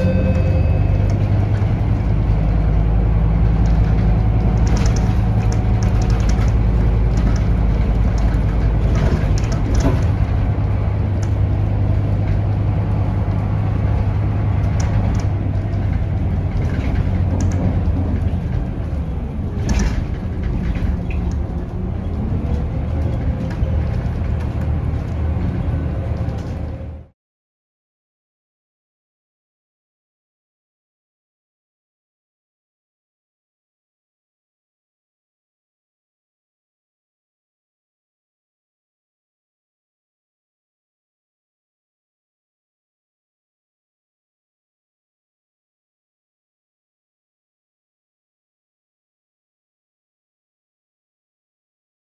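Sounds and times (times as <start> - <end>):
bus diesel engine drone: 0.0 - 27.2
interior rattles and clicks: 0.1 - 27.1.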